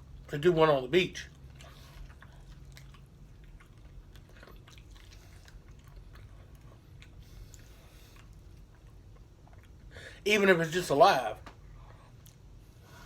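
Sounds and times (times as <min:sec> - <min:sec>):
person chewing and crunching: 0:01.2 - 0:09.9.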